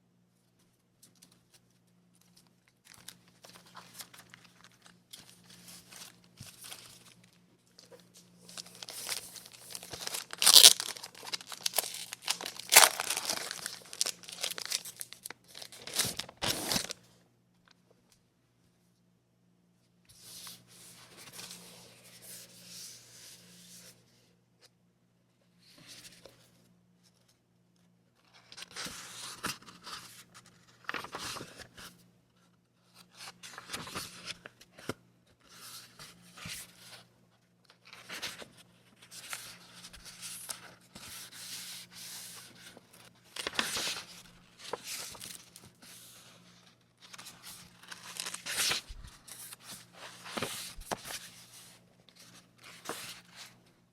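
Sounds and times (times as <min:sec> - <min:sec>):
paper rustling and tearing: 0:08.5 - 0:17.0, 0:47.1 - 0:51.3.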